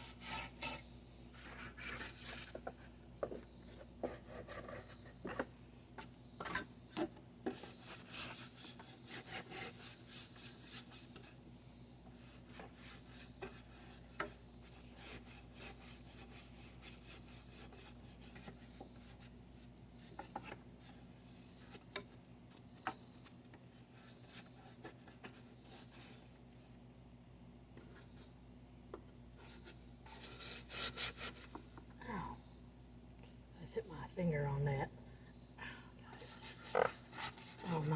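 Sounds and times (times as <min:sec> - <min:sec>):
stiff brush scrubbing: 0:36.3 - 0:37.9.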